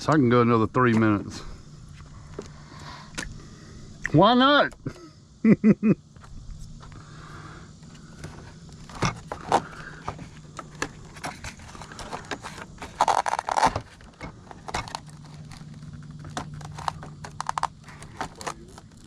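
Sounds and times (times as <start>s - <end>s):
low steady hum: 0.0s - 19.0s
handling clicks and scrapes: 7.8s - 19.0s
rustling: 8.1s - 19.0s.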